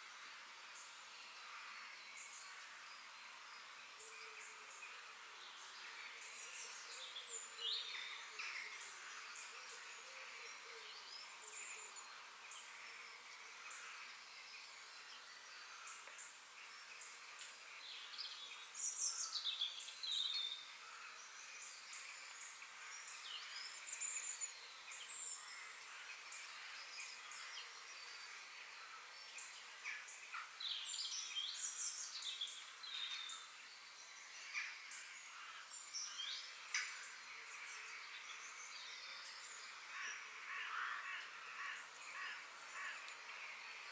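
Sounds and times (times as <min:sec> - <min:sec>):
steady high hiss: 0:00.0 - 0:43.9.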